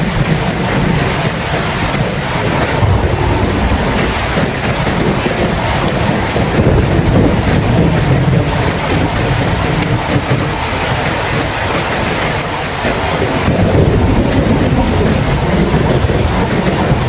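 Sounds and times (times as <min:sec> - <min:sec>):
heavy rain falling: 0:00.0 - 0:17.0
deep low rumble: 0:02.8 - 0:06.1.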